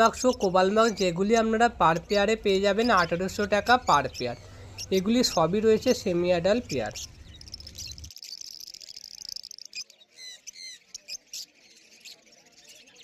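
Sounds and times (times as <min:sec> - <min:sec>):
birds chirping and chattering: 0:00.0 - 0:13.0.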